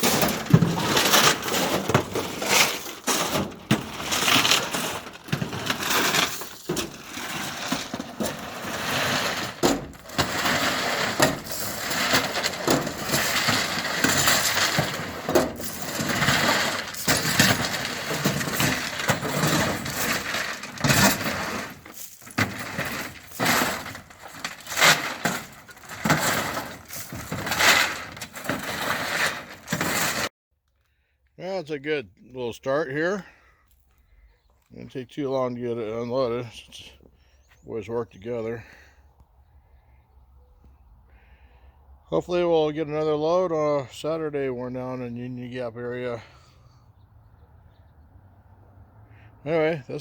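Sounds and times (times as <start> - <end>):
shovel crunching and scraping gravel: 0.0 - 30.3.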